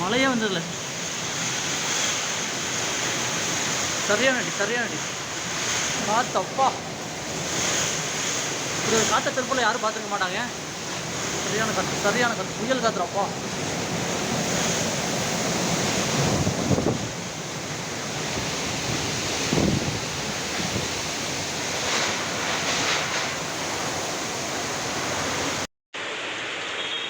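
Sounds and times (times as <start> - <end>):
gusting storm wind: 0.0 - 25.7
heavy rain: 0.0 - 27.0
wind buffeting microphone: 13.3 - 23.1.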